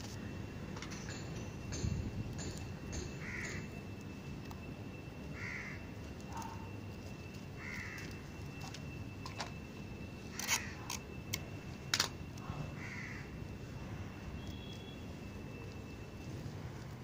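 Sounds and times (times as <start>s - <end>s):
bird calling: 3.0s - 3.8s, 5.2s - 6.8s, 7.5s - 8.3s.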